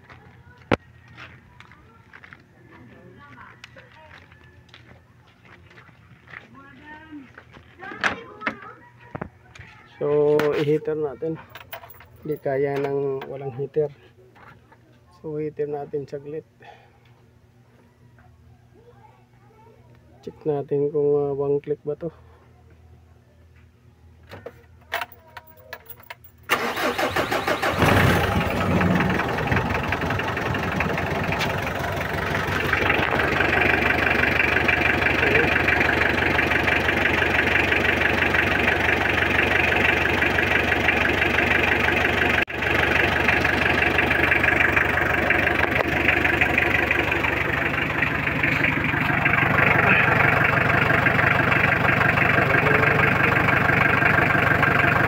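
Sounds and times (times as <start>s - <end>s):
diesel engine cranking and idling: 24.9s - 55.0s.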